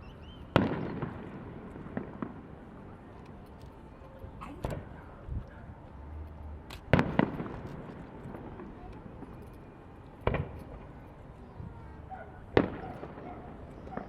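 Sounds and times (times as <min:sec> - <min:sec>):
fireworks bursting: 0:00.0 - 0:03.1, 0:06.8 - 0:09.4, 0:12.5 - 0:13.2.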